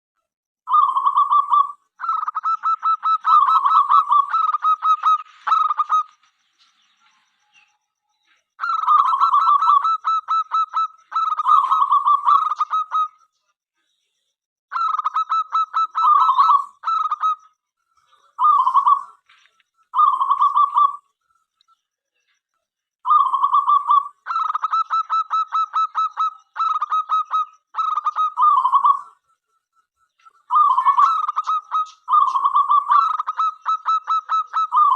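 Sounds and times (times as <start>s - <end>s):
dove cooing: 0.7s - 6.1s, 8.6s - 13.1s, 20.0s - 21.0s, 23.1s - 29.2s, 30.5s - 34.9s.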